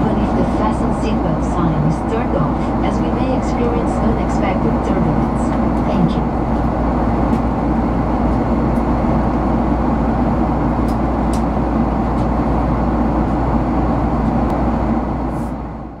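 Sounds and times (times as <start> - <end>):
airplane cabin rush and hum: 0.0 - 16.0.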